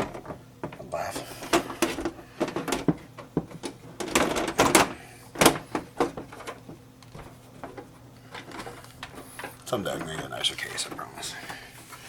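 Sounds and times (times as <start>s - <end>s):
cables rustling: 0.0s - 12.0s
computer case clicks and knocks: 1.5s - 7.9s.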